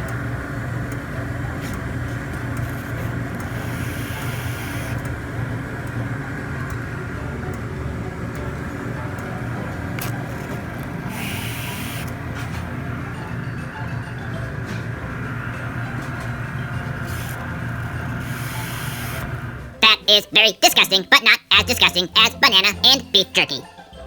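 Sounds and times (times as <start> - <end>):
toy train motor whirring: 0.9 - 5.2, 9.2 - 19.7.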